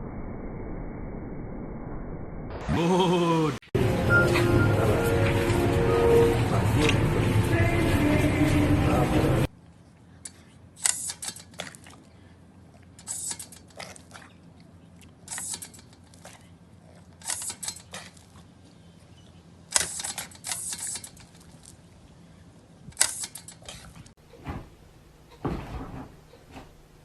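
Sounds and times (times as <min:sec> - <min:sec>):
background music: 0:03.8 - 0:09.5.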